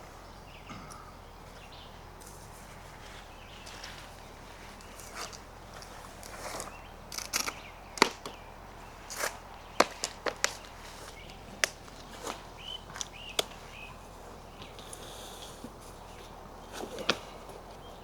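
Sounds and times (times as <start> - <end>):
footsteps on dry twigs: 1.4 - 15.0.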